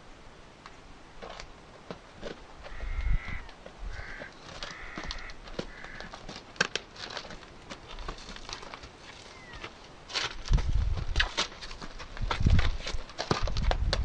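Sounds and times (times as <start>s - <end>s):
crow-like bird cawing: 2.7s - 6.2s.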